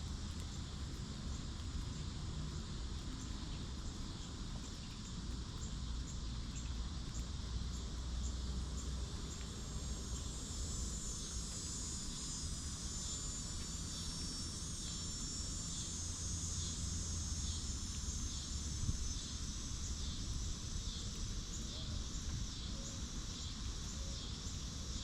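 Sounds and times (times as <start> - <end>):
insects chirping: 0.0 - 25.0
steady high buzz: 7.1 - 25.0.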